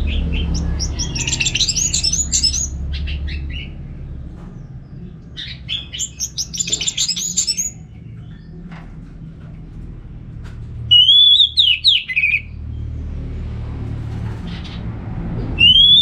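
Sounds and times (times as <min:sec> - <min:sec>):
thrush singing high chirps: 0:00.0 - 0:03.0, 0:05.8 - 0:07.8.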